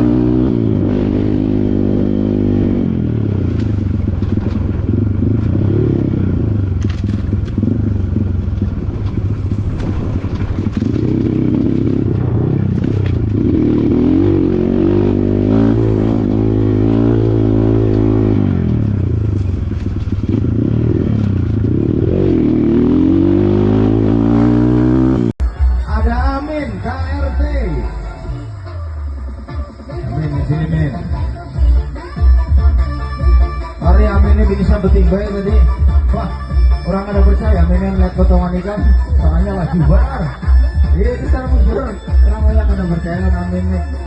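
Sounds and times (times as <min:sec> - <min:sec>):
dirt bike engine revving: 0:00.0 - 0:25.4
rattling and scraping on ground: 0:06.6 - 0:13.5, 0:18.4 - 0:21.8.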